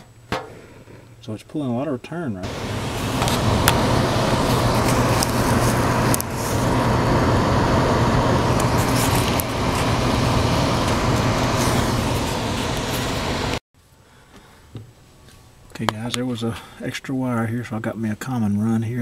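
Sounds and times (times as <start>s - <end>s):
air rushing through hole: 2.4s - 13.6s
furnace blower drone: 2.4s - 13.6s.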